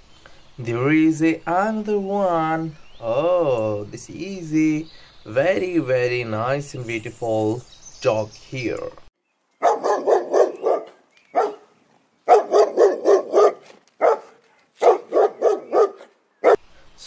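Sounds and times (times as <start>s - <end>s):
dog barking: 9.6s - 11.7s, 12.3s - 16.6s.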